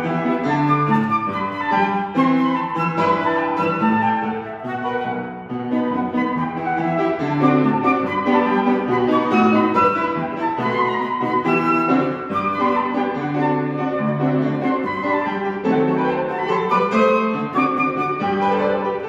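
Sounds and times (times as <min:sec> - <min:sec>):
flute slow melody: 0:00.0 - 0:19.0
piano accompaniment: 0:00.0 - 0:19.0.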